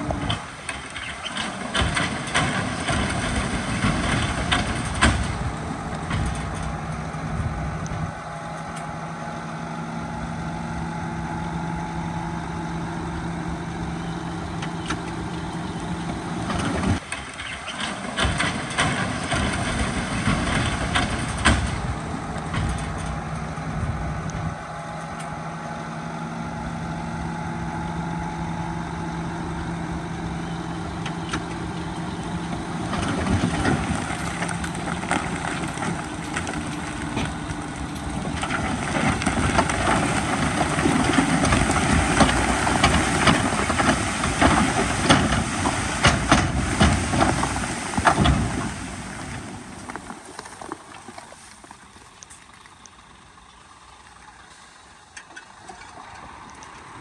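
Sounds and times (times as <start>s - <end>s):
rocks clattering and tumbling: 0.0s - 8.1s, 31.4s - 53.2s
heavy diesel engine running: 0.0s - 57.0s.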